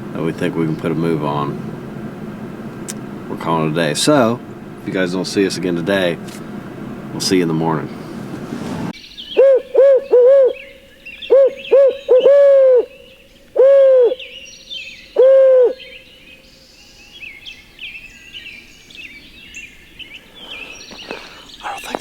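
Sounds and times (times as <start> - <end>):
small birds chirping: 0.0 - 8.3, 15.8 - 22.0
owl call hoots: 9.3 - 14.4, 15.1 - 16.1.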